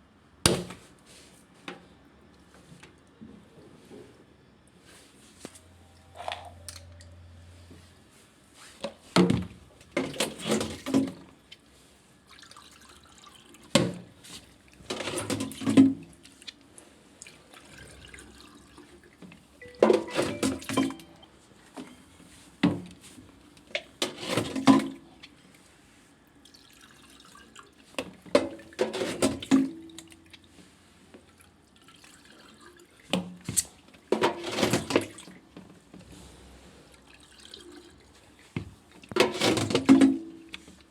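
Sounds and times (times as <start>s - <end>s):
water splashing and pouring: 12.2s - 13.7s, 17.2s - 19.1s, 26.4s - 27.9s, 37.0s - 38.2s.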